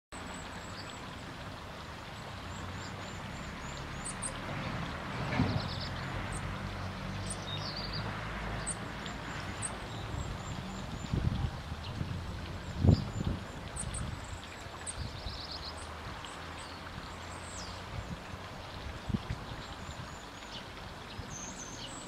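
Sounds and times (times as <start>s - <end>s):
small birds chirping: 2.1s - 4.5s, 5.4s - 12.0s, 12.6s - 18.4s, 19.3s - 22.0s.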